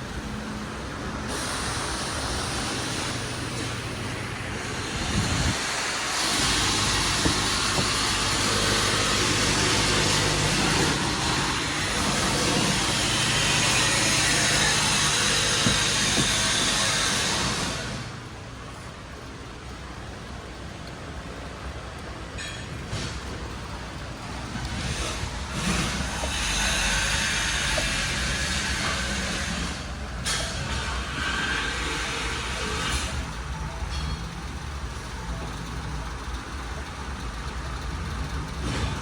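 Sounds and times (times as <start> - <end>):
car engine running: 0.0 - 21.4, 31.7 - 39.0
loud hiss: 1.2 - 18.2.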